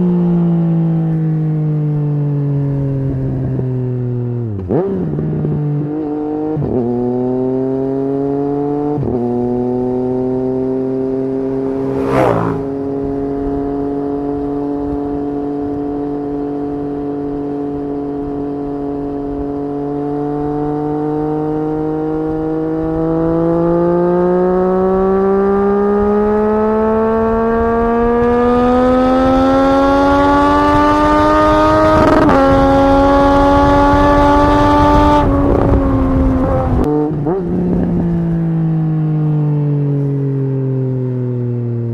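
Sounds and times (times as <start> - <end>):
motorcycle engine: 0.0 - 41.9
wind noise: 8.9 - 39.1.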